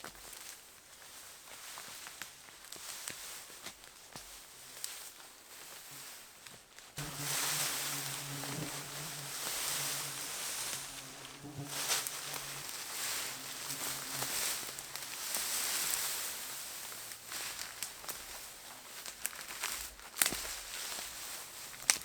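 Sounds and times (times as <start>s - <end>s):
fly buzzing: 7.0s - 18.1s
rustling of bracken: 7.0s - 22.0s.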